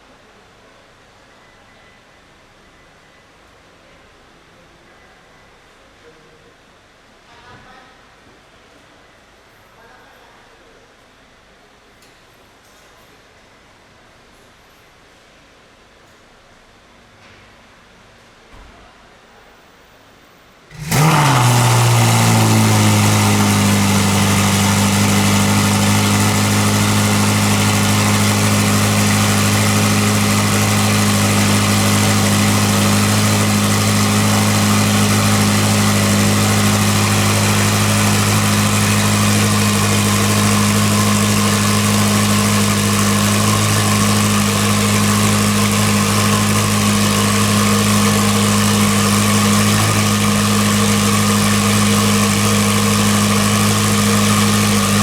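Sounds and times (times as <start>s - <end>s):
car engine high idle: 20.7s - 55.0s.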